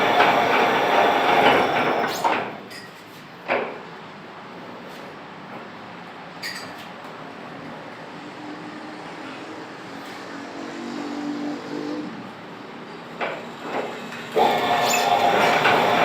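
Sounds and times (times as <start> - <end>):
metal lathe running: 0.0 - 2.5, 14.4 - 16.0.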